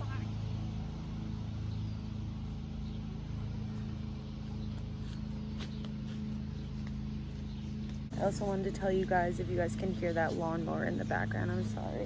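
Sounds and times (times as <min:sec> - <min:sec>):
lawnmower engine running: 0:00.0 - 0:11.9.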